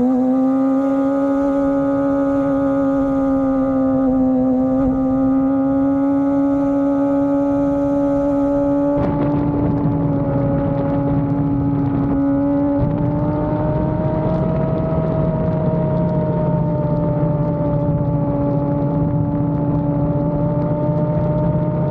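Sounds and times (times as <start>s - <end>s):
motorcycle engine at high revs: 0.0s - 21.9s
low rumble: 7.3s - 21.9s.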